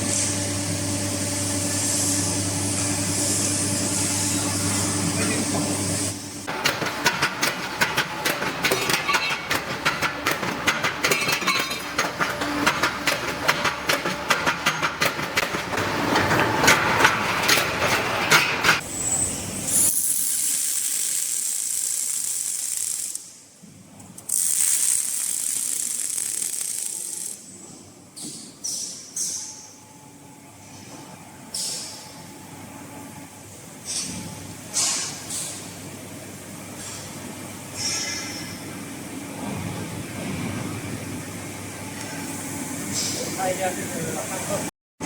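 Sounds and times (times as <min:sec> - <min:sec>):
metallic clattering machinery: 0:06.5 - 0:23.2, 0:24.1 - 0:27.4.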